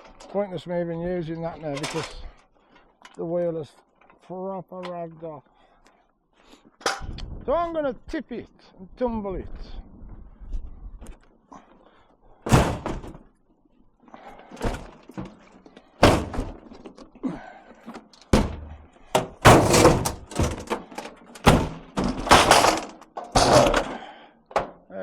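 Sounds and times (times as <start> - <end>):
washing machine tumbling thuds: 12.5 - 13.2, 16.0 - 16.7, 18.3 - 23.9.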